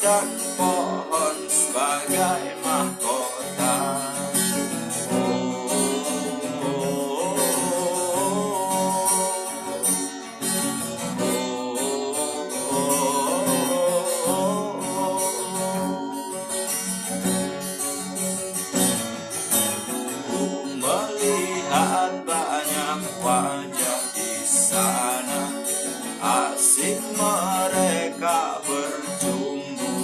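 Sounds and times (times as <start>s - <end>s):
acoustic guitar strumming: 0.0s - 30.0s
melody line over chords: 0.1s - 18.2s.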